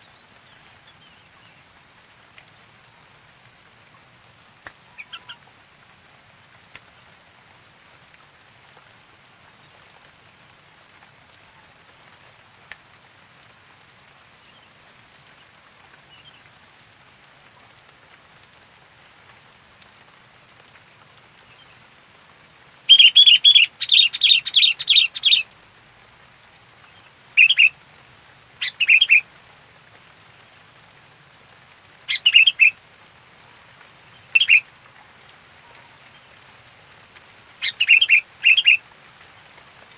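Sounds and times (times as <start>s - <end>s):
bulbul chirping: 22.9s - 25.4s.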